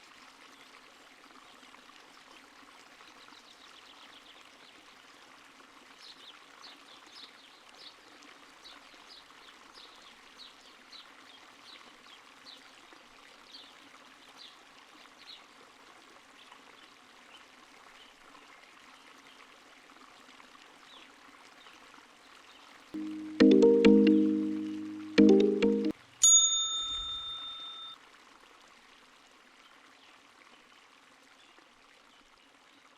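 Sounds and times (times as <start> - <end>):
small stream trickling: 0.0 - 22.9, 27.9 - 32.9
faint high chirp: 26.6 - 28.0.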